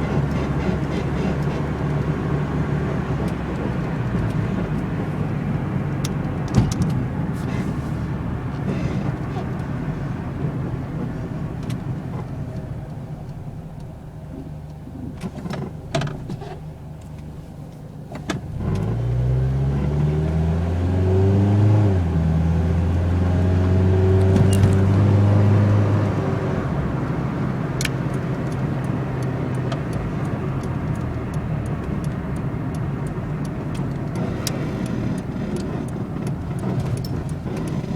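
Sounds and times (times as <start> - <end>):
car engine revving: 18.4 - 37.9.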